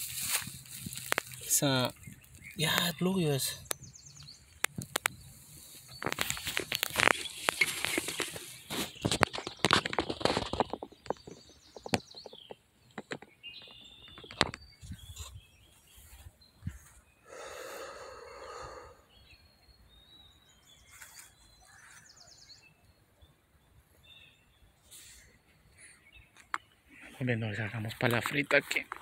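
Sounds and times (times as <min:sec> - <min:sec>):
handling noise rustling and clicking: 0:00.0 - 0:01.4, 0:04.6 - 0:15.4
outdoor background noise: 0:00.0 - 0:29.0
small birds chirping: 0:00.0 - 0:29.0.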